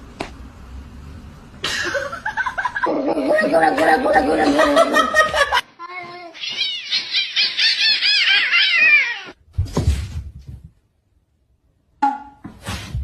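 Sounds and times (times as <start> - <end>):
cat meowing: 6.3 - 9.4.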